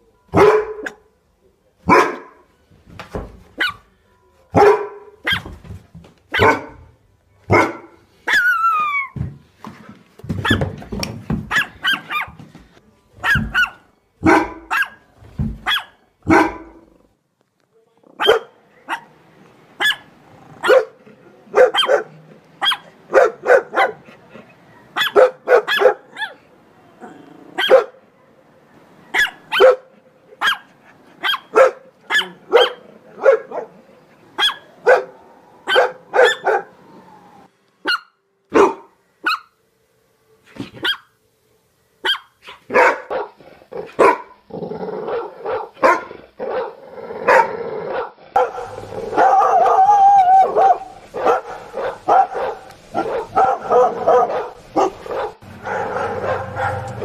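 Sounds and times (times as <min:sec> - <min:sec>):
dog barking: 0:00.3 - 0:01.0, 0:01.9 - 0:02.4, 0:04.5 - 0:05.5, 0:06.3 - 0:06.9, 0:07.5 - 0:08.5, 0:11.5 - 0:12.4, 0:13.2 - 0:15.0, 0:15.6 - 0:16.8, 0:18.2 - 0:19.1, 0:19.8 - 0:24.0, 0:24.8 - 0:26.4, 0:27.6 - 0:28.3, 0:29.1 - 0:33.8, 0:34.4 - 0:36.8, 0:37.8 - 0:39.5, 0:42.0 - 0:44.4, 0:45.1 - 0:49.8, 0:50.4 - 0:57.0.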